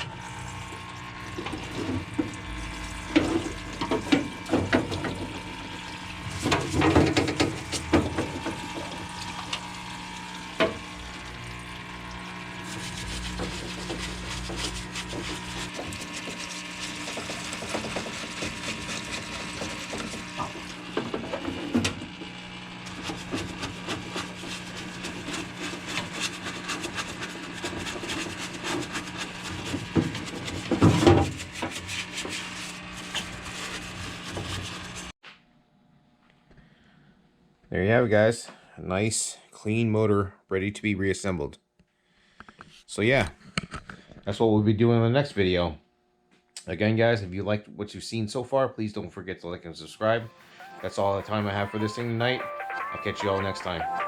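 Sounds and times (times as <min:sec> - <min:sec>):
liquid spraying: 0:00.0 - 0:20.9
pump running: 0:00.0 - 0:35.1, 0:50.0 - 0:54.0
brush scrubbing: 0:01.3 - 0:09.2, 0:12.5 - 0:20.8, 0:22.8 - 0:35.1, 0:50.0 - 0:54.0.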